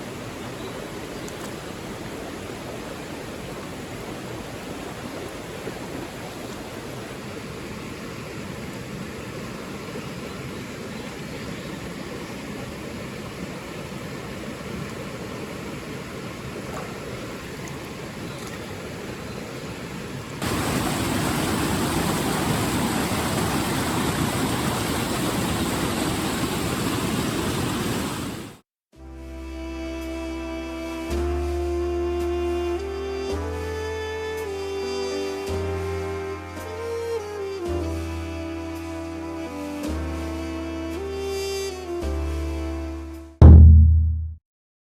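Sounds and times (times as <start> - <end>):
stream water rushing: 0.0 - 28.6
music: 29.0 - 43.9.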